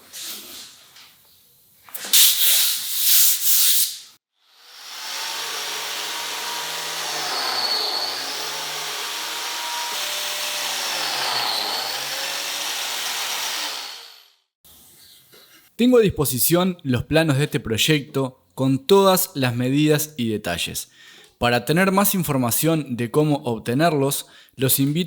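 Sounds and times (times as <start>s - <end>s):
power sander running: 4.6s - 14.2s
rasping sanding strokes: 5.4s - 13.7s.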